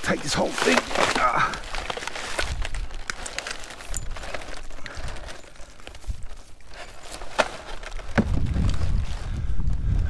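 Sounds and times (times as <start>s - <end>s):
junk being handled: 0.0s - 8.8s.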